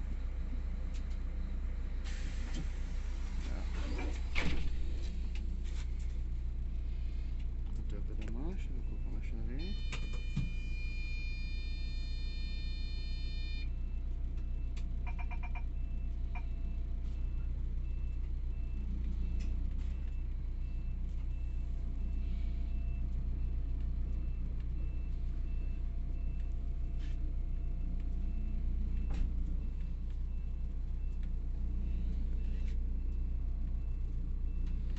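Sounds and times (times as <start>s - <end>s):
dashboard electronic tone: 8.8s - 13.7s
electronic beeps: 8.8s - 13.7s, 15.1s - 15.8s.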